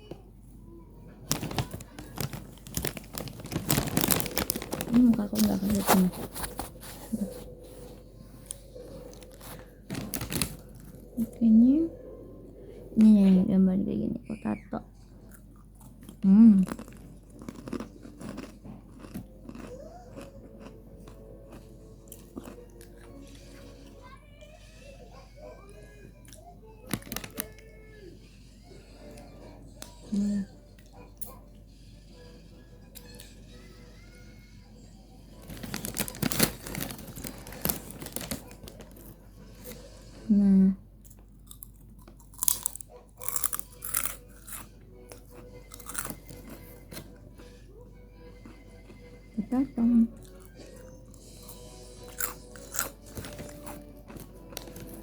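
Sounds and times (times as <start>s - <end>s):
crunchy chewing: 1.2s - 13.2s, 15.0s - 24.2s, 35.4s - 40.2s, 41.0s - 49.3s, 50.1s - 55.0s
faint thin melody: 43.7s - 55.0s.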